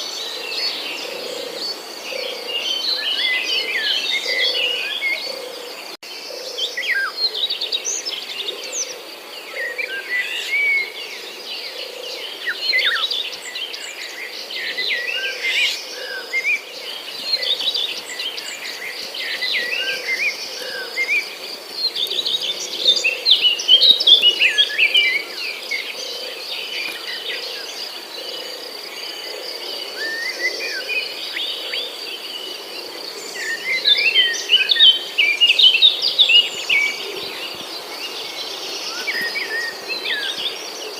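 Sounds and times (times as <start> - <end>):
small birds chirping: 11.6 - 40.9.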